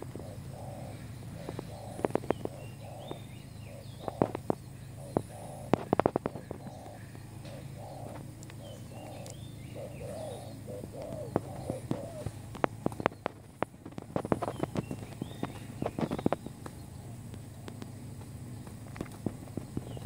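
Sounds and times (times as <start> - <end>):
dove cooing: 0.0 - 18.0, 19.0 - 20.0
sharp clicks: 11.0 - 20.0.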